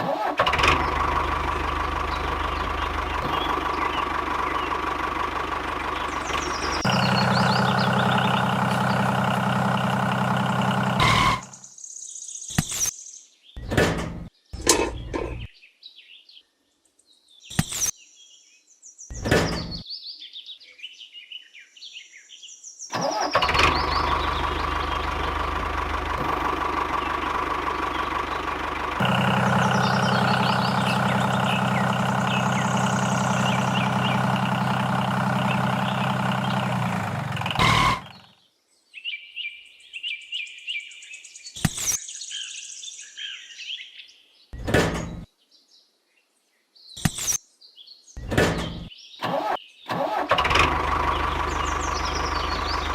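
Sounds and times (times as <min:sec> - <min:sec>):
motor running: 0:00.2 - 0:11.5, 0:23.3 - 0:38.3
birds chirping: 0:00.3 - 0:52.9.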